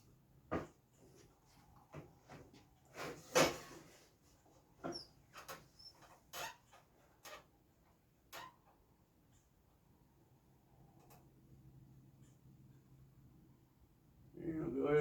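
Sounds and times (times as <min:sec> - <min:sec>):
faint high squeaks: 0:04.8 - 0:07.5.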